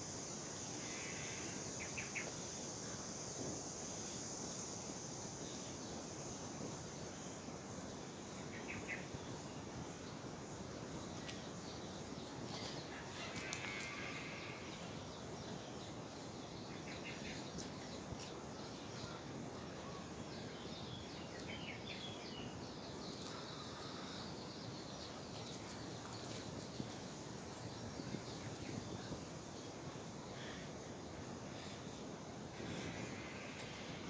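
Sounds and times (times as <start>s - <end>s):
outdoor background noise: 0.0s - 34.0s
small birds trilling: 10.9s - 30.6s.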